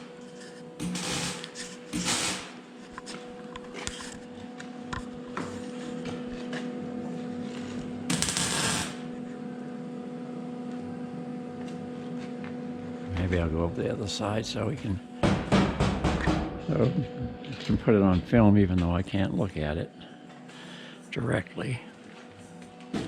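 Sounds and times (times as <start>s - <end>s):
electric welder sizzling: 0.0s - 2.9s, 7.4s - 9.3s
steady hum: 0.0s - 23.0s.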